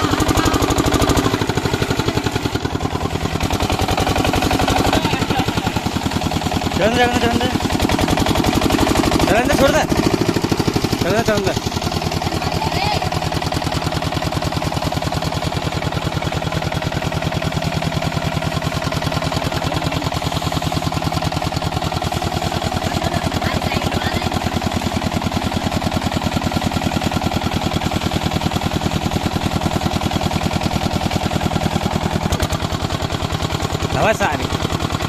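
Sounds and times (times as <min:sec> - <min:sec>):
diesel pump engine running: 0:00.0 - 0:35.0.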